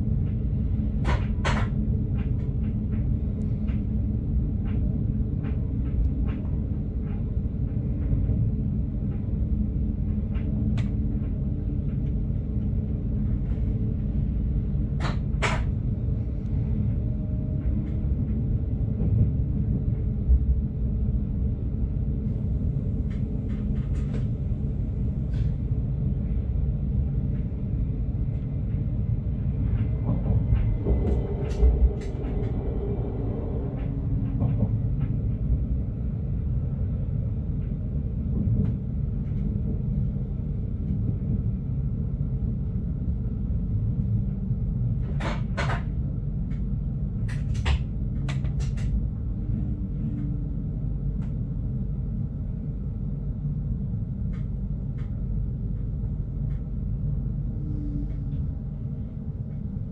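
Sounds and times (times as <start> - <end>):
train low rumble: 0.0 - 59.9
sharp clicks and knocks: 47.2 - 49.0.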